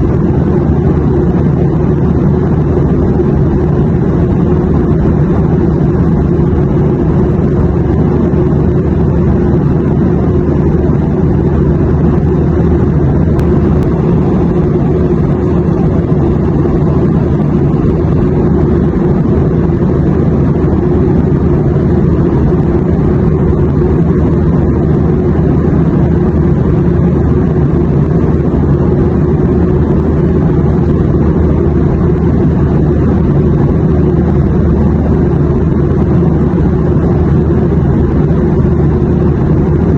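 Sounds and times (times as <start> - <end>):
airplane drone: 0.0 - 39.9.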